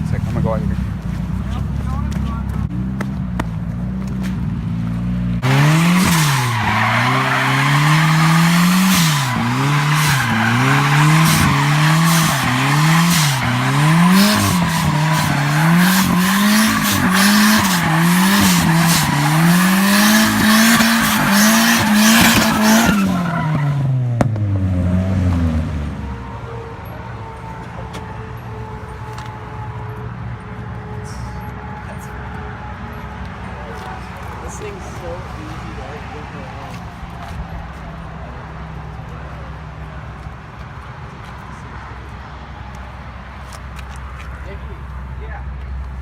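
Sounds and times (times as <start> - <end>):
car engine revving hard: 5.3 - 26.0
tyres squealing: 5.4 - 23.9.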